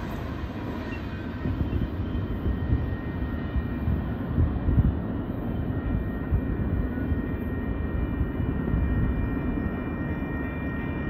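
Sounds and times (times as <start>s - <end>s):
freight train wheels rumbling: 0.0s - 5.4s
faint high whine: 0.0s - 11.0s.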